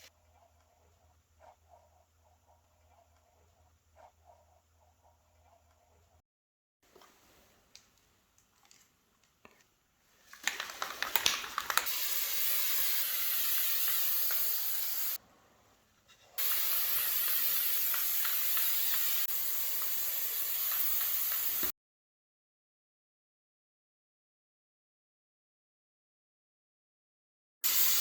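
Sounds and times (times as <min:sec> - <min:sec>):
spray can rattle: 0:10.3 - 0:15.2, 0:16.4 - 0:21.7, 0:27.6 - 0:28.0
aerosol spray can hissing: 0:11.0 - 0:15.2, 0:16.4 - 0:21.7, 0:27.6 - 0:28.0.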